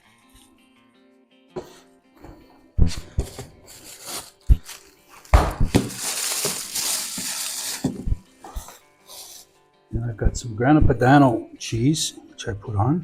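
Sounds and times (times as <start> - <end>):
garlic being crushed: 3.8 - 8.0.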